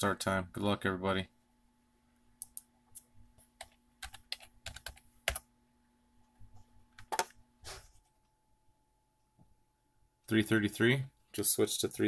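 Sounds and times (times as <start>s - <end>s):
computer keyboard typing: 3.5s - 5.5s.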